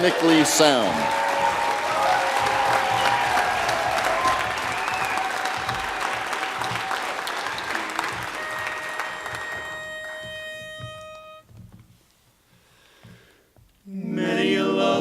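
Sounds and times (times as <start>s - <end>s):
audience applause: 0.0s - 11.2s
pitch pipe reedy note: 7.5s - 11.5s.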